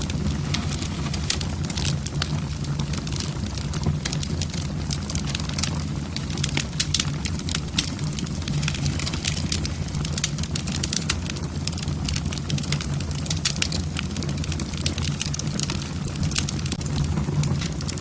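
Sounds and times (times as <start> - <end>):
fire low rumble: 0.0 - 18.0
wood fire crackling and popping: 0.0 - 18.0.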